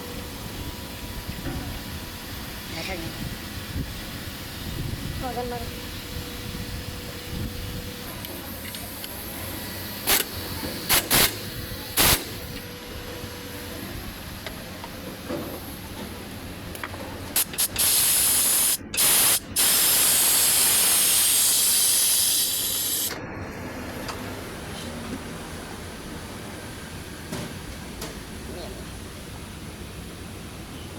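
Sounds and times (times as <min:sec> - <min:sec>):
aerosol spray hissing: 0:17.4 - 0:23.1.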